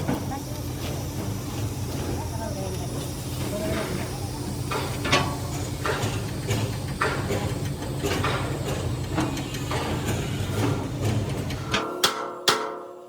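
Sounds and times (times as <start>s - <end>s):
low machine hum: 0.0s - 11.7s
metal knocks and clanks: 4.7s - 13.0s.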